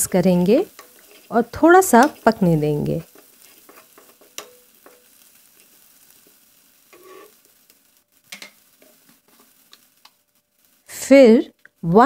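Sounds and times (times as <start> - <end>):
wooden spatula scraping pan: 0.0 - 6.3, 6.9 - 7.6, 8.4 - 9.9
masala sizzling in oil: 0.0 - 12.0.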